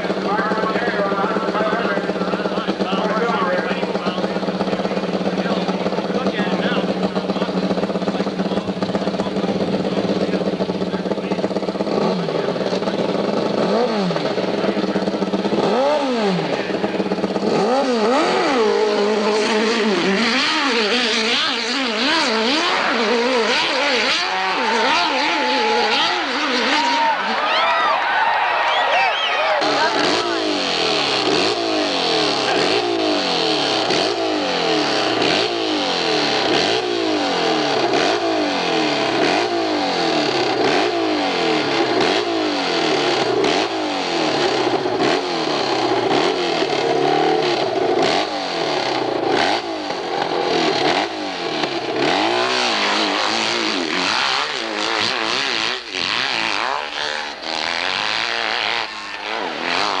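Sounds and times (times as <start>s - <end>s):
motorcycle engine revving: 0.0s - 60.0s.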